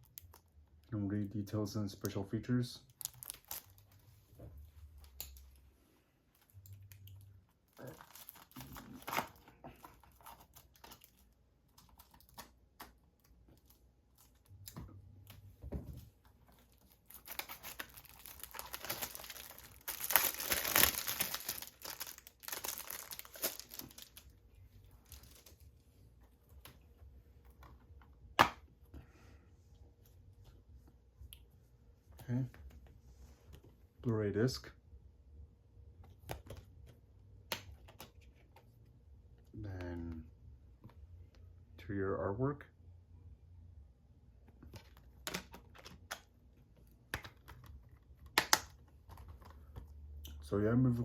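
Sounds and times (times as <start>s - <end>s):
plastic wrap crinkling: 2.8s - 4.0s, 6.3s - 12.5s, 16.5s - 25.7s.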